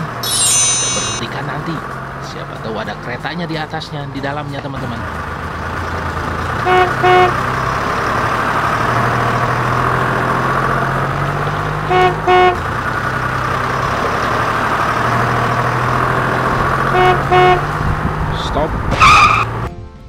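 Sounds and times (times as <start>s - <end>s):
truck engine running: 4.8s - 19.6s
horn double toot: 6.6s - 7.4s, 11.9s - 12.6s, 16.9s - 17.7s.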